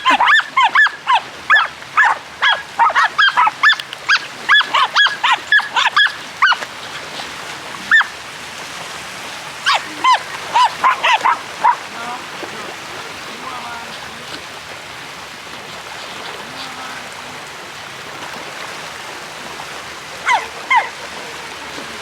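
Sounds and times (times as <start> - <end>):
dog yelping: 0.0 - 6.6, 7.9 - 8.2, 9.6 - 11.9, 20.2 - 21.0.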